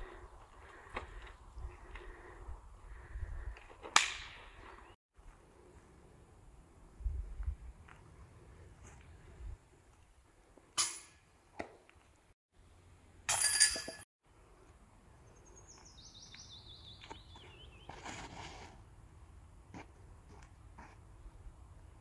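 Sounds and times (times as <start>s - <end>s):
songbird singing falling notes: 15.4s - 17.9s
soft rustle: 17.4s - 18.9s.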